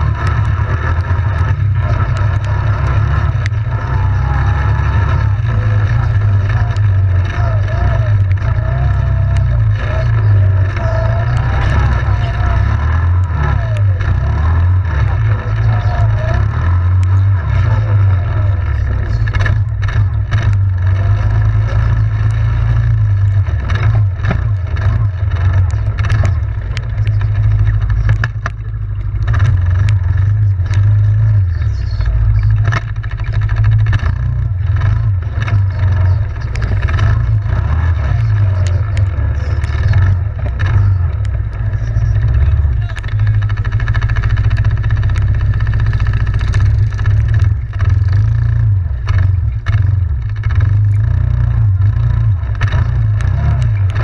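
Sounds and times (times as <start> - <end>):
atv engine droning: 0.0 - 54.0
knocks and clatter from riding: 0.0 - 54.0.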